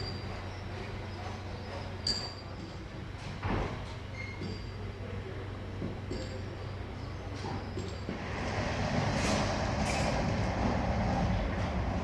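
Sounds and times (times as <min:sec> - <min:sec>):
sharp metallic clink: 0:02.0 - 0:02.5.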